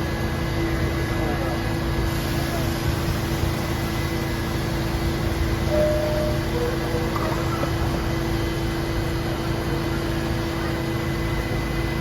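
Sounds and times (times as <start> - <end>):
mechanical hum and rumble: 0.0 - 12.0
constant mid-pitched tone: 5.5 - 8.3.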